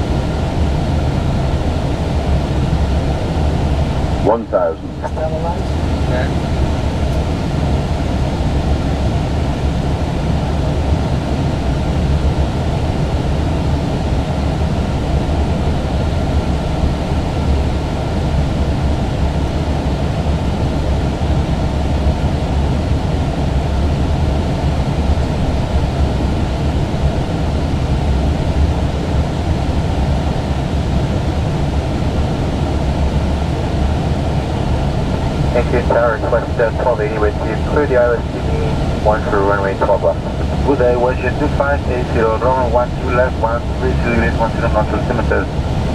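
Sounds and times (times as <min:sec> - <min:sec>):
aircraft engine rumble: 0:00.0 - 0:45.9
airflow rushing: 0:31.9 - 0:45.9.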